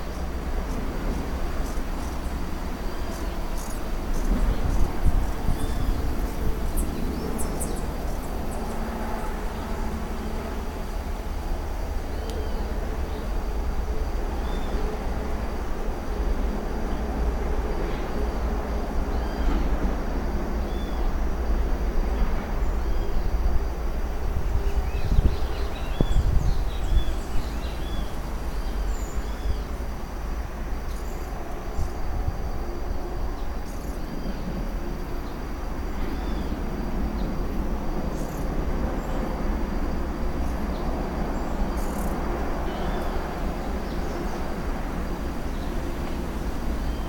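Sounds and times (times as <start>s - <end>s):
small birds chirping: 1.6s - 8.9s.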